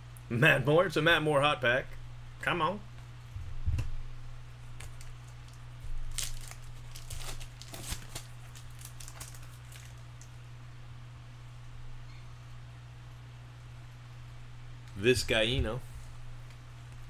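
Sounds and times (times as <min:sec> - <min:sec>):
steady low hum: 0:00.0 - 0:17.0
cards being handled: 0:04.7 - 0:10.3
foil wrapper crinkling and tearing: 0:04.8 - 0:10.4.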